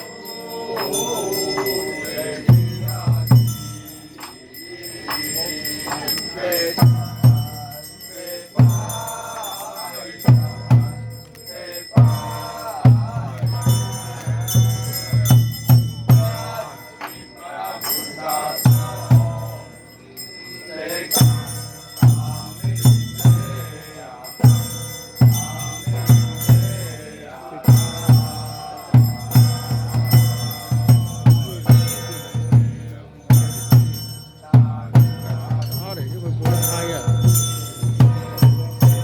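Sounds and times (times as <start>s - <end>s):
hand bell jingling: 0.0s - 39.0s
person chanting: 0.0s - 39.0s
drum beaten in quick runs: 2.4s - 4.4s, 5.9s - 7.9s, 10.3s - 11.2s, 12.0s - 19.6s, 21.2s - 23.8s, 24.4s - 39.0s.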